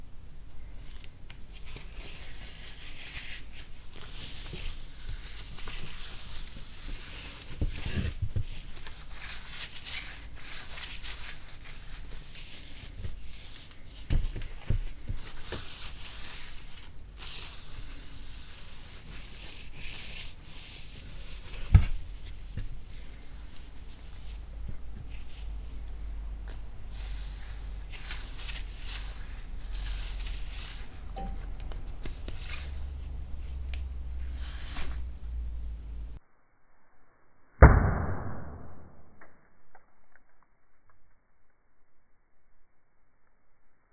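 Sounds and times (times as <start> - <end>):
chalk crumbling and scraping: 1.4 - 36.2.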